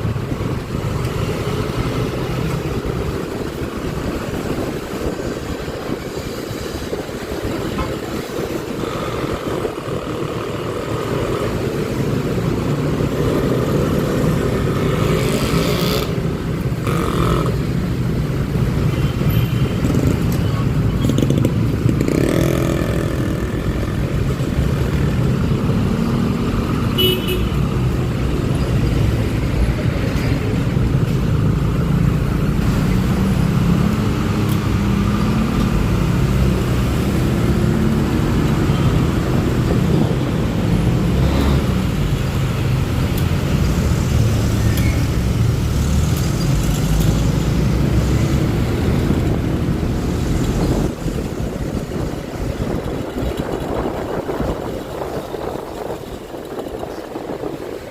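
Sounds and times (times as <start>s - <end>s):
traffic: 0.0s - 57.9s
wind rumble: 27.6s - 57.9s.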